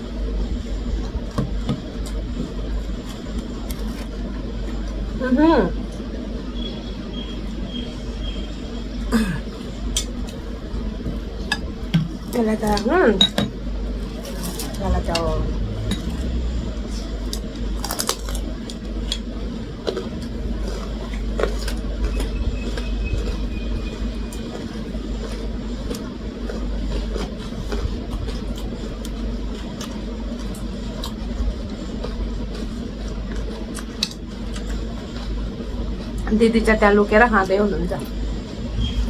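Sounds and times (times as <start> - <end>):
low rumble: 14.0 - 19.0, 37.8 - 39.0.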